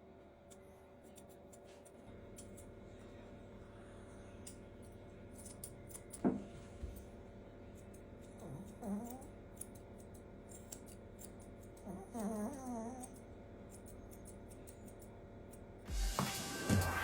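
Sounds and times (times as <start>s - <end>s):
scissors snipping: 0.5s - 2.7s, 5.4s - 6.2s, 7.8s - 15.6s.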